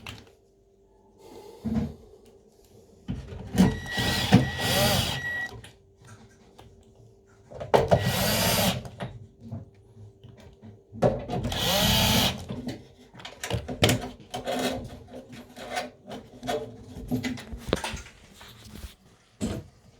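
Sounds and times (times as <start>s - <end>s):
power drill running: 3.7s - 5.5s, 7.9s - 8.8s, 11.5s - 12.5s.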